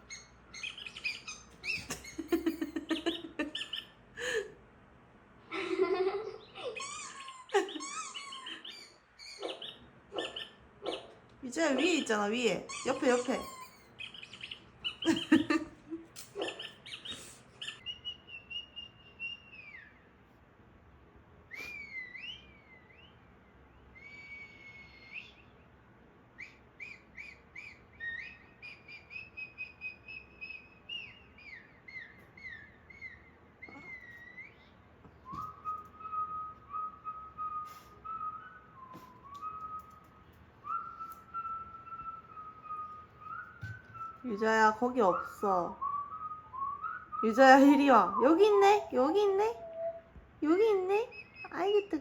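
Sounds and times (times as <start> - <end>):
person whistling a tune: 35.3 - 44.2.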